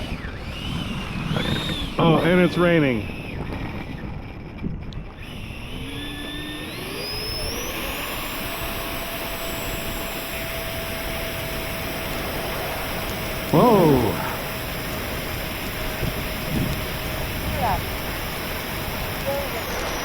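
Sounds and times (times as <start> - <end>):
electric ducted fan whine: 0.0 - 20.0.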